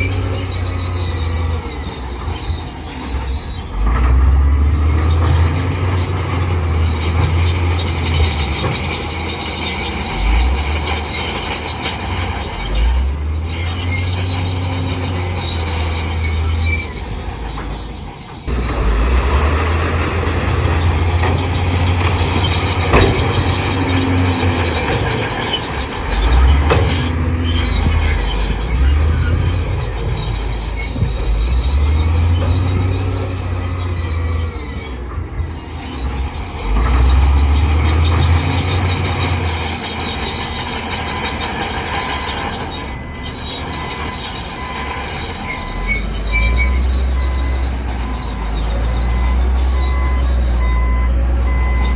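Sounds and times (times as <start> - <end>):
bulldozer diesel engine rumble: 0.0 - 51.9
steel tracks squealing and clanking: 0.0 - 51.9.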